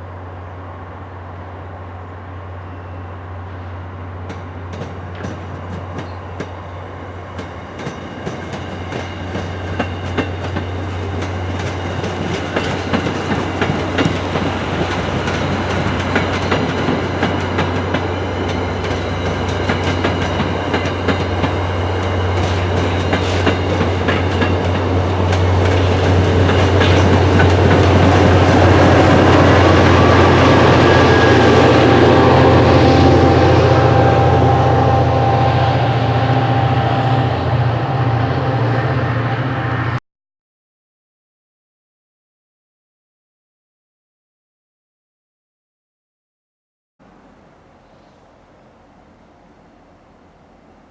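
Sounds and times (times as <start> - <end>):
train low drone: 0.0 - 40.0, 47.0 - 50.9
train wheels clicking over rail joints: 4.2 - 30.0.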